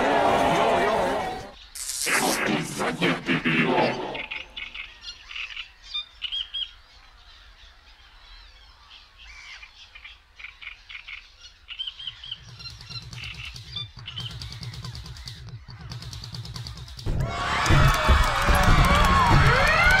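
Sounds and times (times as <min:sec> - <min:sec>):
birds chirping: 0:01.2 - 0:17.0.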